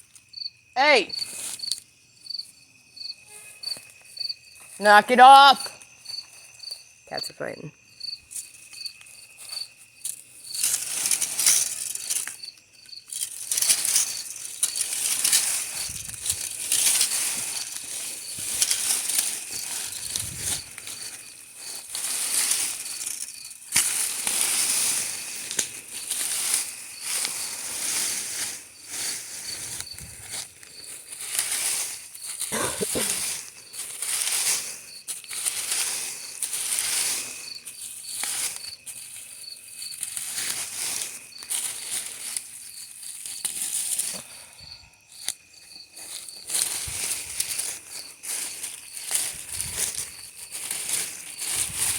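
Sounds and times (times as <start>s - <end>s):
crickets chirping: 0.0s - 51.9s
scraping in soil and stones: 1.1s - 7.3s, 8.0s - 51.9s.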